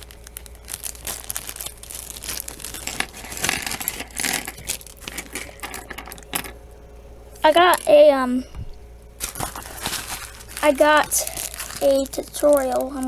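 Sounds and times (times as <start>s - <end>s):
plastic bag crinkling: 0.0s - 6.4s, 9.2s - 13.0s.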